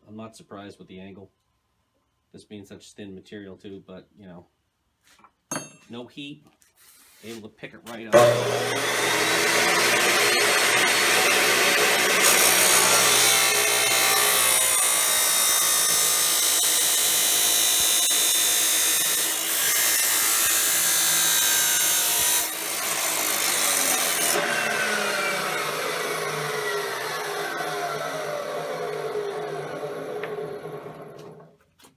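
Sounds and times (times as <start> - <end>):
chop saw grinding through steel: 8.1 - 31.4
motor whining down: 8.2 - 14.0, 24.4 - 31.5.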